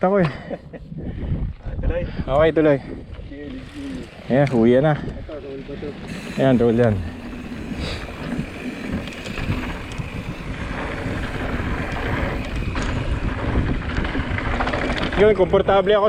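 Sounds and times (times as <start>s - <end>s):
wind on camera microphone: 0.7s - 16.0s
bike tyre rumble on dirt: 1.1s - 16.0s.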